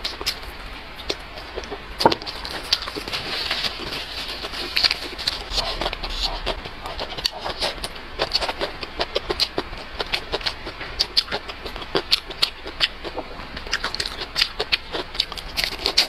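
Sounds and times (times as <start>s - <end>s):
person chewing crunchy food: 0.0s - 16.0s.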